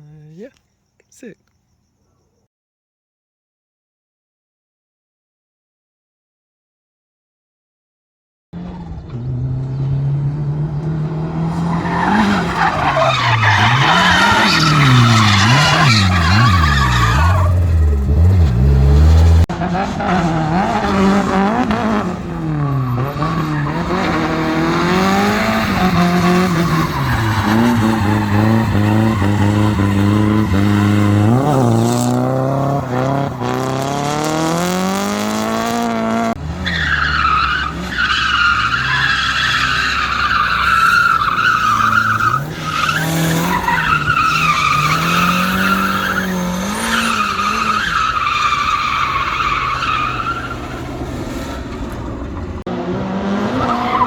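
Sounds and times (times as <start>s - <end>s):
car engine revving: 8.6s - 54.0s
tyre squeal: 11.7s - 18.0s, 22.4s - 33.6s, 36.6s - 51.7s.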